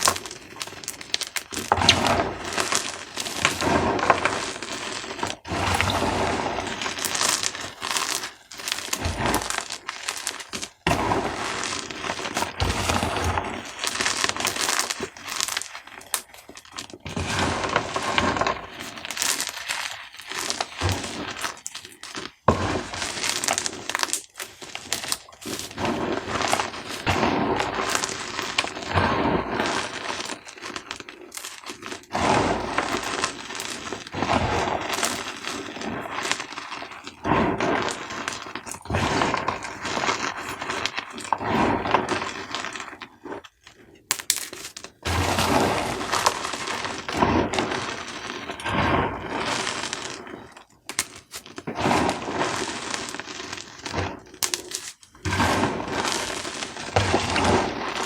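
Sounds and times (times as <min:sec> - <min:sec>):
chalk cubes crunching: 0:00.0 - 0:43.4, 0:44.1 - 0:48.6, 0:49.3 - 0:58.0.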